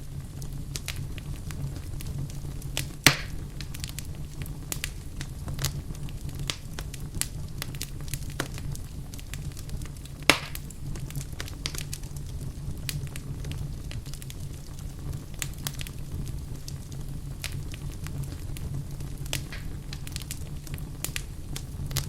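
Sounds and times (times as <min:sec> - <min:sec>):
wood fire crackling: 0:00.0 - 0:22.0
sharp loud pops: 0:03.1 - 0:03.4, 0:10.3 - 0:10.6.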